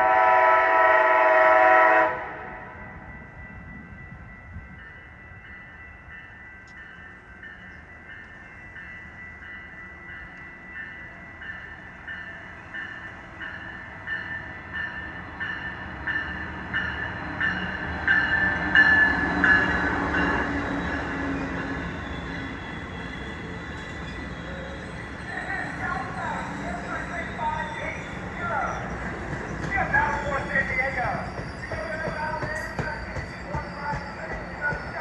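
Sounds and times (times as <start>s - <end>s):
train approaching: 0.0s - 35.0s
warning bell ringing: 24.8s - 35.0s.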